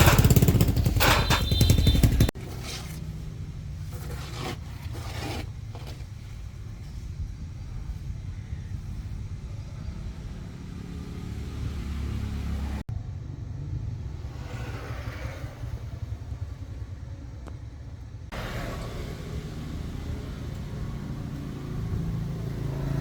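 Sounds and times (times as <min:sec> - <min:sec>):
truck engine running: 0:00.0 - 0:04.8.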